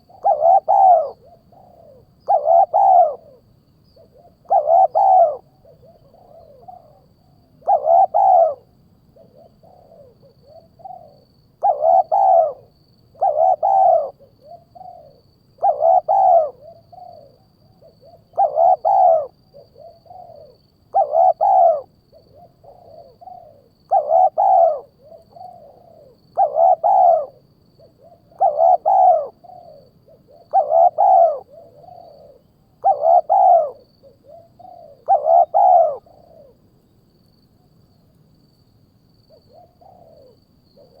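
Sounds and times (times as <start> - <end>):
loud arched hawk call: 0.0 - 3.4, 4.5 - 5.5, 7.6 - 8.6, 11.6 - 14.3, 15.6 - 16.7, 18.4 - 19.4, 20.2 - 21.9, 23.4 - 27.4, 28.1 - 36.6
softer bird calls: 0.0 - 37.0, 39.2 - 41.0.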